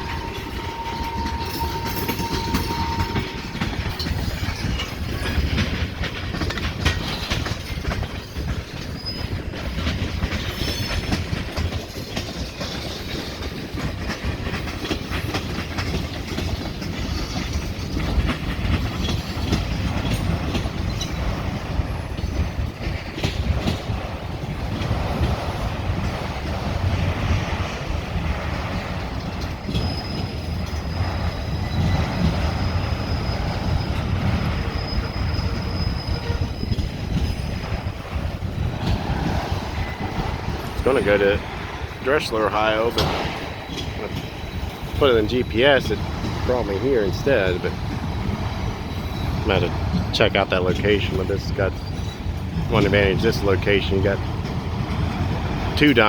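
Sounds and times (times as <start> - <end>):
wheel squeal: 0.0 - 5.8, 6.8 - 9.8, 10.4 - 11.3, 29.7 - 41.3, 42.1 - 50.2
train wheels clacking on track: 0.0 - 56.0.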